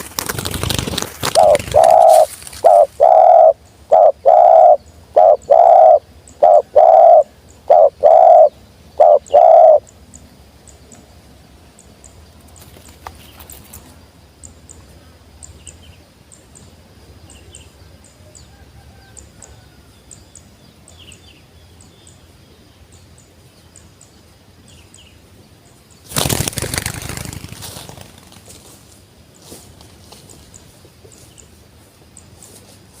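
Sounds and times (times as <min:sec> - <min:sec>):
wing flapping: 0:00.0 - 0:03.5, 0:26.1 - 0:28.8
dove cooing: 0:01.2 - 0:09.8.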